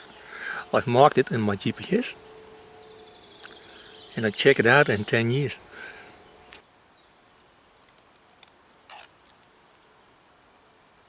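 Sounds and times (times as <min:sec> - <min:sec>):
brief rustle: 0:07.8 - 0:10.0.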